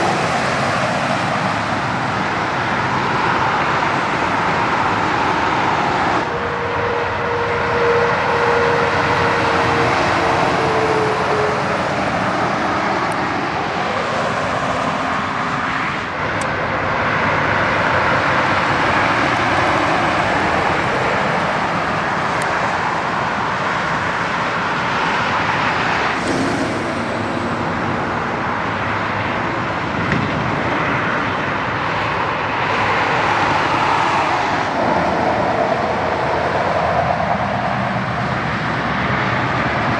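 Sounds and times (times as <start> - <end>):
highway traffic roar: 0.0 - 39.9
passing vehicle whine: 0.0 - 39.9.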